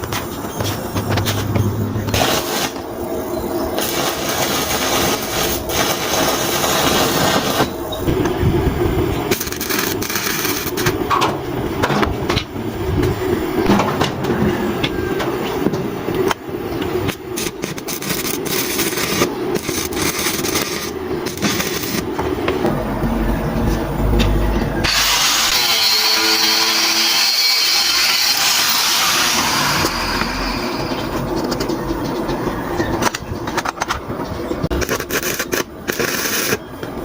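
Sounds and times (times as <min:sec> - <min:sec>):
metal scraping and rasping: 0:17.4 - 0:32.2
knocks and clicks: 0:22.2 - 0:24.9.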